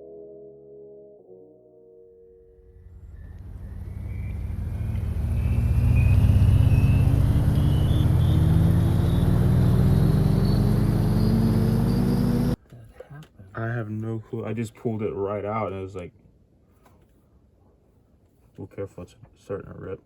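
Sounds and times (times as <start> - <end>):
engine accelerating with whine: 2.6 - 12.6.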